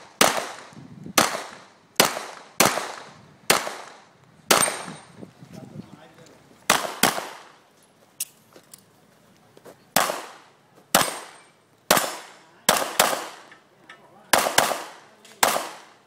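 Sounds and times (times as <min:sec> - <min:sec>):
pistol shots echoing: 0:00.0 - 0:05.0, 0:06.7 - 0:07.6, 0:10.0 - 0:13.5, 0:14.3 - 0:16.0.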